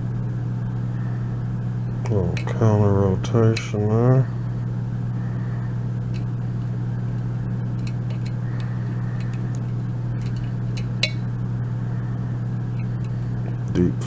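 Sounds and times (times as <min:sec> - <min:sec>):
steady low hum: 0:00.0 - 0:14.0
lock pick clicking: 0:10.2 - 0:11.2.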